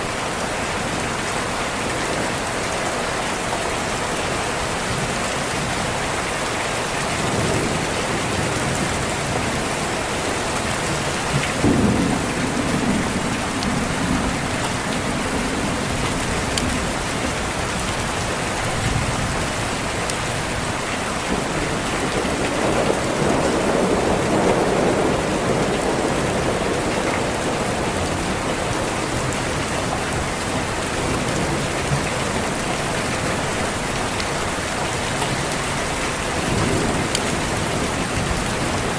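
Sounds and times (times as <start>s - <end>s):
heavy rain: 0.0s - 38.9s
thunder rumbling: 7.2s - 34.6s, 35.7s - 38.9s.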